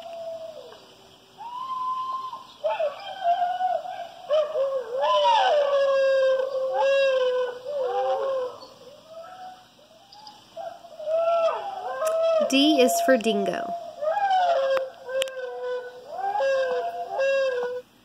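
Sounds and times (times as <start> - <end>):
dingo howling: 0.0 - 0.8, 1.4 - 13.0, 13.6 - 17.8.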